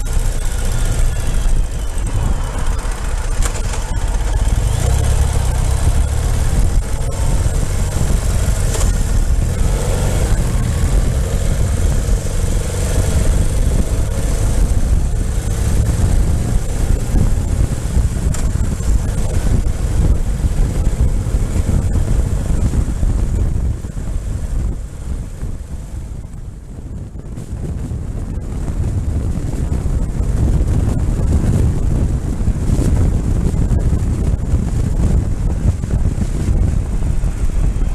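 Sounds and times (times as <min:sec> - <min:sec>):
motorcycle engine running: 0:00.0 - 0:37.9
wind on microphone: 0:00.0 - 0:37.9.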